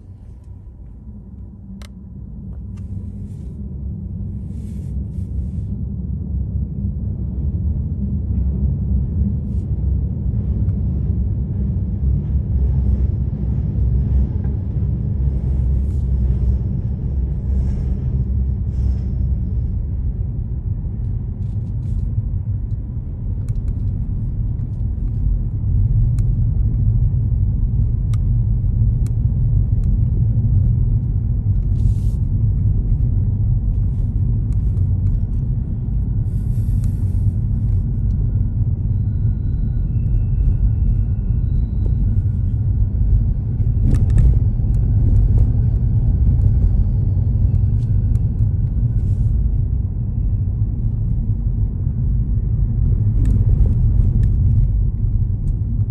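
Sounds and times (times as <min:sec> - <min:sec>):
car driving rumble: 0:07.2 - 0:55.9.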